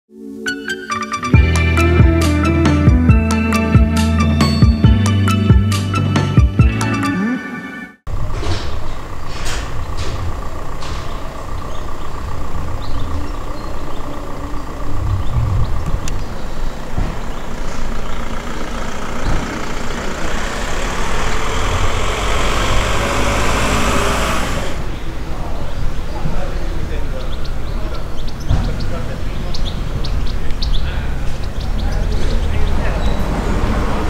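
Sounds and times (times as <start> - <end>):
race car engine idling: 8.1 - 22.1.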